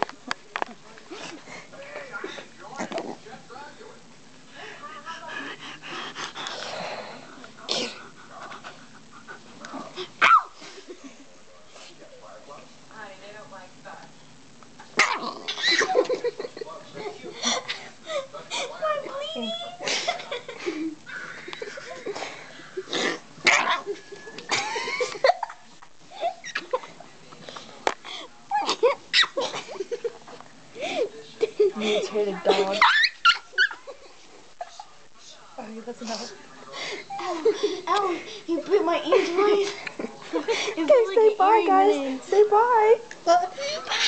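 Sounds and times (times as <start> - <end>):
dog squealing: 10.2 - 10.6, 32.8 - 33.8
small dog vocal noises: 15.0 - 15.9.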